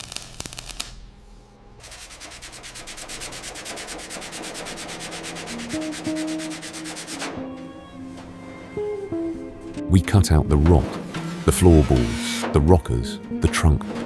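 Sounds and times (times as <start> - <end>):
metal being sanded: 1.8 - 7.6, 10.6 - 12.6.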